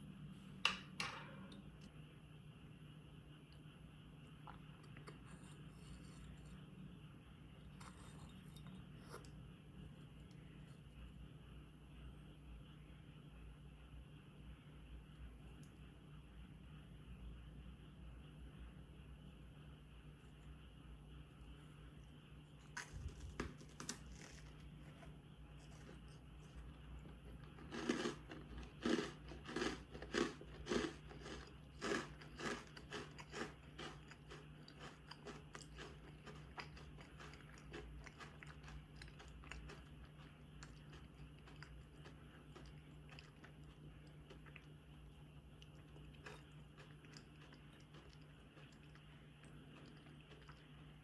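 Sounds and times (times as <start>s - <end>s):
person crunching a sweet: 22.6s - 25.0s, 25.6s - 50.9s.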